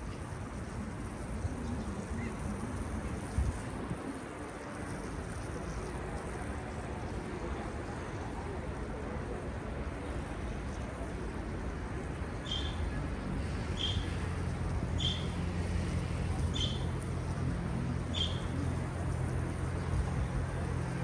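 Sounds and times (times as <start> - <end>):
bird chirping: 12.4 - 12.8, 13.8 - 14.0, 15.0 - 15.3, 16.5 - 16.9, 18.1 - 18.5.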